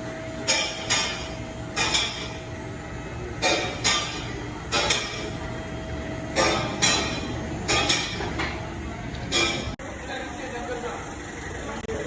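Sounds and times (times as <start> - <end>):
steady background noise: 0.0 - 12.0
sharp metallic clanks and knocks: 0.4 - 2.5, 3.3 - 5.4, 6.2 - 9.8.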